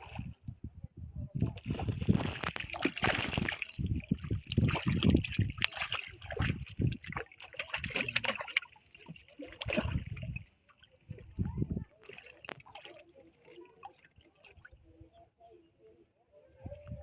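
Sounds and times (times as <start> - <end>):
water splashing beside boat: 1.4 - 15.0.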